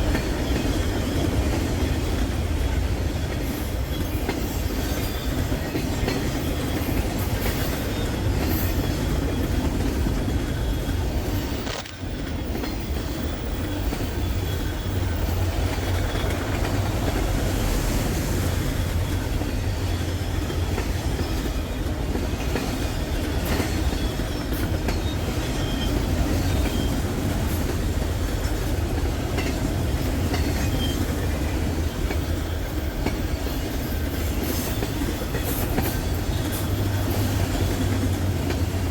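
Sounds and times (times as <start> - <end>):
freight train rumbling: 0.0 - 38.9
wheels clicking over rail joints: 19.0 - 38.9.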